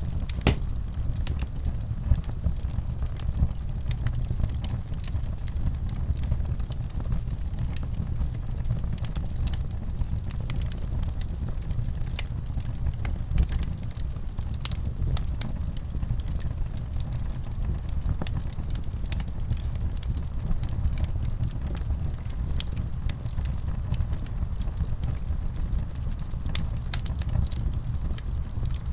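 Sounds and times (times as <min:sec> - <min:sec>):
low rumble of burning: 0:00.0 - 0:28.9
wood fire crackling: 0:00.0 - 0:28.9
sharp pops and snaps: 0:00.4 - 0:00.9.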